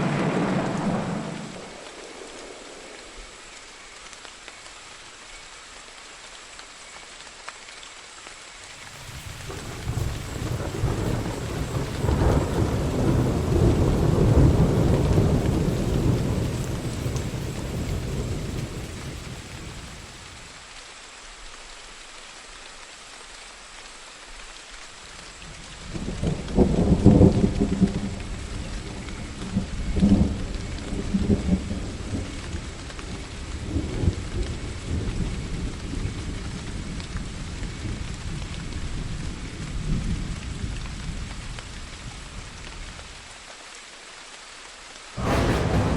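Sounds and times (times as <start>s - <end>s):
thunder rumbling: 0.0s - 3.2s, 8.7s - 20.6s, 45.2s - 45.9s
steady rain falling: 0.0s - 45.9s.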